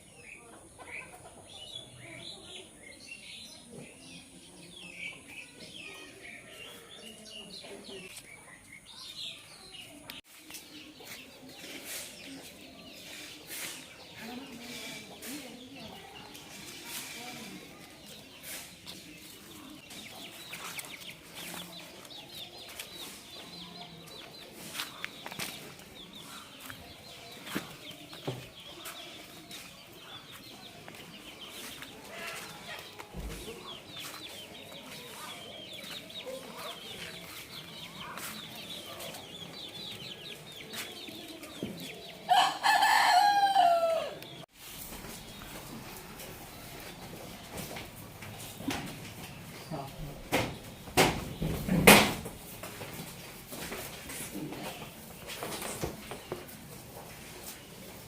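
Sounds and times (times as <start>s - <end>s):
rooster crowing: 42.3s - 44.2s.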